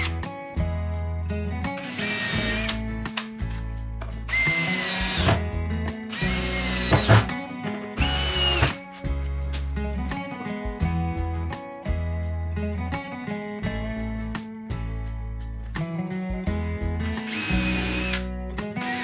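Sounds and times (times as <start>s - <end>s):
background music: 0.0s - 19.0s
power drill whine: 1.8s - 2.8s, 4.3s - 5.4s, 6.2s - 7.3s, 8.0s - 8.8s, 17.3s - 18.2s.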